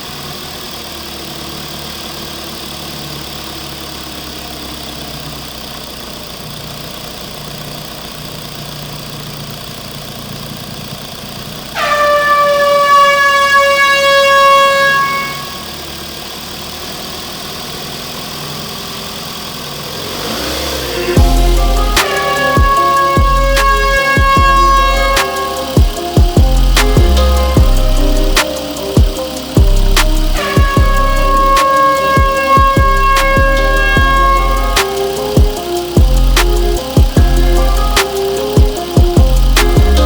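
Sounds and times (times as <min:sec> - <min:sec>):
engine drone: 0:00.0 - 0:40.0
truck air horn blast: 0:11.7 - 0:16.1, 0:20.1 - 0:40.0.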